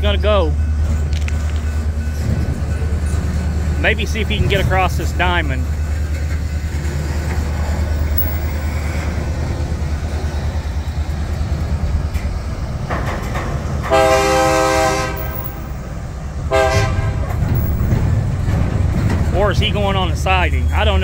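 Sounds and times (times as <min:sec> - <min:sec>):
diesel locomotives rumbling: 0:00.0 - 0:21.0
locomotive horn blast: 0:13.8 - 0:15.8, 0:16.4 - 0:17.6.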